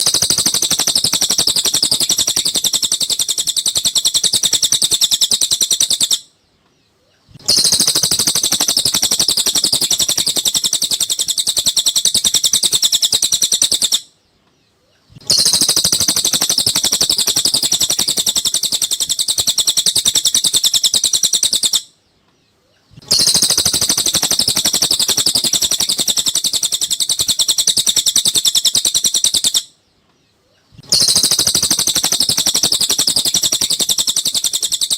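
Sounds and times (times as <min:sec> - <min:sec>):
high-pitched bird trilling: 0:07.3 - 0:14.0, 0:15.2 - 0:21.9, 0:23.0 - 0:29.7, 0:30.8 - 0:34.9.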